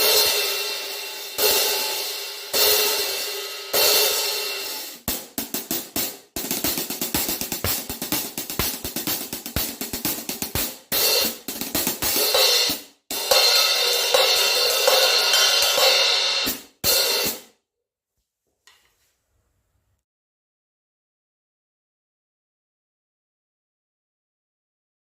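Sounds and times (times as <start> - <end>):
hi-hats played: 2.6 - 17.4.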